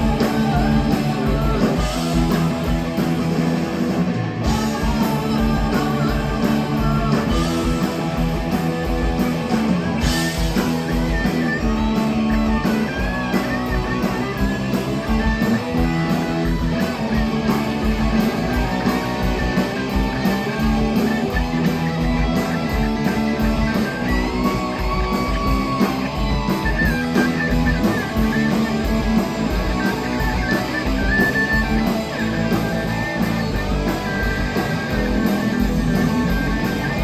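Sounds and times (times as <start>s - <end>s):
electric guitars: 0.0s - 37.0s
rock band playing loud: 0.0s - 37.0s
steady drum beat: 0.0s - 37.0s.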